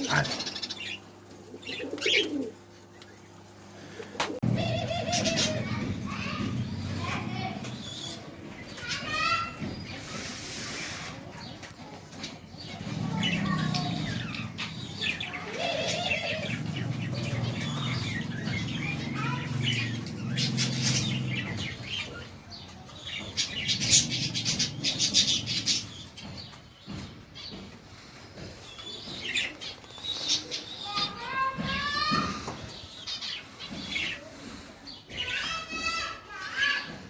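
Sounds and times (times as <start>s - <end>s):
pigeons cooing: 0.0s - 26.5s
caged birds chirping: 0.0s - 37.0s.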